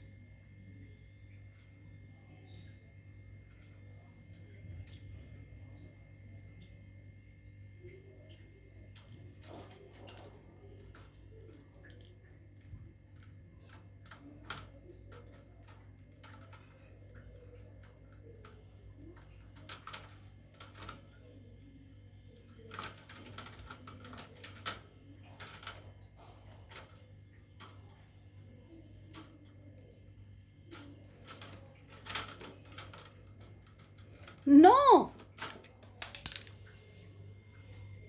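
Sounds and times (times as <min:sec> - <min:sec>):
beaks clicking on wire cage: 0:35.4 - 0:36.6.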